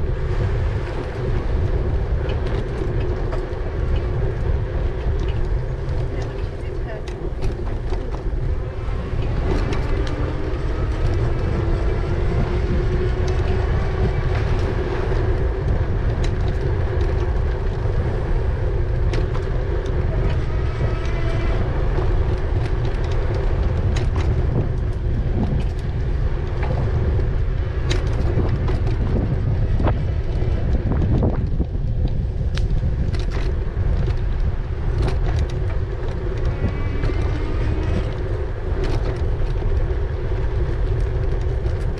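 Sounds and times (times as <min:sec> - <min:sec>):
wind rumbling on microphone: 0:00.0 - 0:41.9
bike clicks and knocks: 0:00.1 - 0:41.9
electric bike motor whine: 0:08.4 - 0:41.9.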